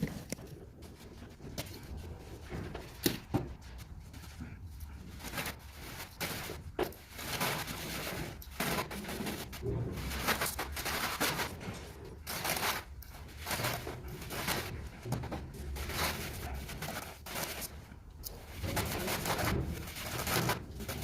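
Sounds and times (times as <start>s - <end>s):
trowel scraping cement mortar: 5.1s - 21.0s.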